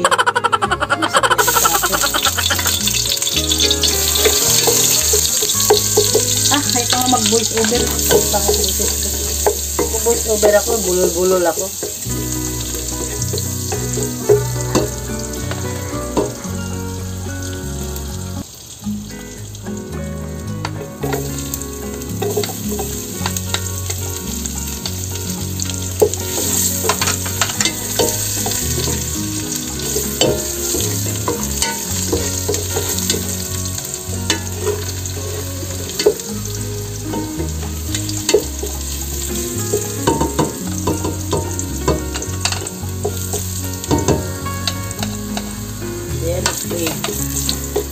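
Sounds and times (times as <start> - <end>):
garlic sizzling in hot oil: 1.3 - 47.9
wooden spatula scraping pot: 1.4 - 16.4.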